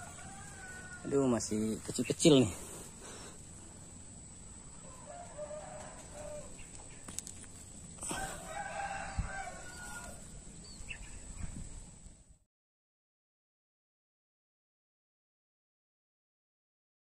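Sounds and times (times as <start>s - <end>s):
rooster crowing: 0.0s - 1.8s, 4.6s - 6.6s, 8.0s - 10.5s.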